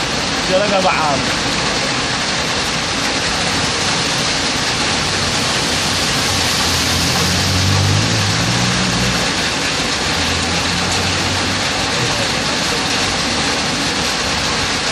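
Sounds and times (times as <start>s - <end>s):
heavy rain pouring: 0.0s - 14.9s
vehicle engine hum: 3.4s - 13.8s.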